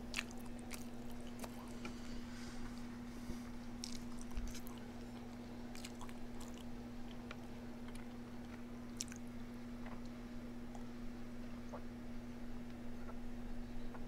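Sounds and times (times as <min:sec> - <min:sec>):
person chewing food: 0:00.0 - 0:02.9, 0:03.5 - 0:10.9
steady low hum: 0:00.0 - 0:14.0.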